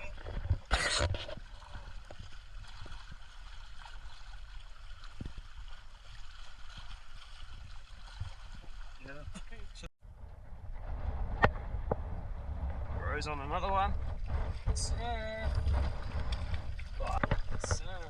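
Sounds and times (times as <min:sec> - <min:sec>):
shoreline water: 0:00.0 - 0:18.0
wind buffeting microphone: 0:10.0 - 0:18.0.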